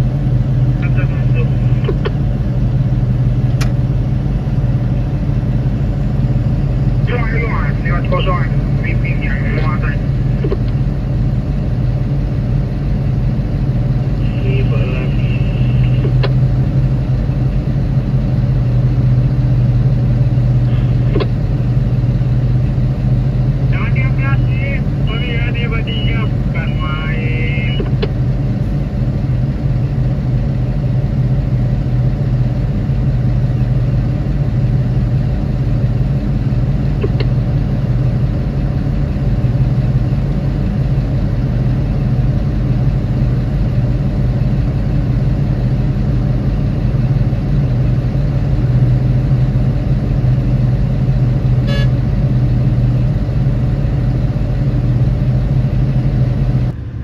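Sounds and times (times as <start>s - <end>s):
large diesel engine droning: 0.0s - 57.0s.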